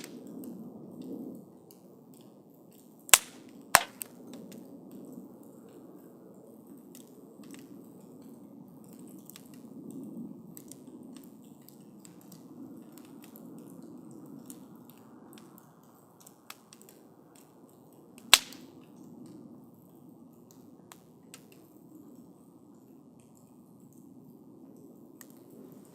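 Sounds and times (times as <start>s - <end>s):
campfire flames rushing: 0.0s - 25.9s
fire crackling: 0.0s - 25.9s
loud sharp pop: 3.1s - 4.1s.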